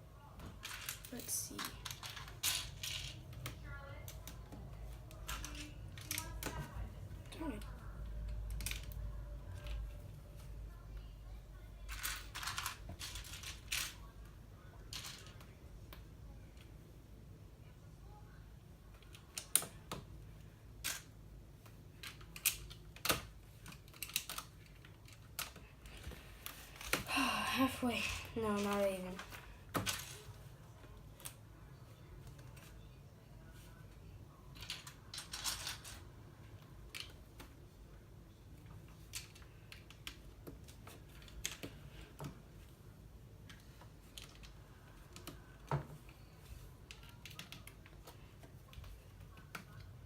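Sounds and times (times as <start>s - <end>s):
faint steady hum: 0.0s - 50.0s
plastic toy bricks clattering: 34.6s - 36.0s.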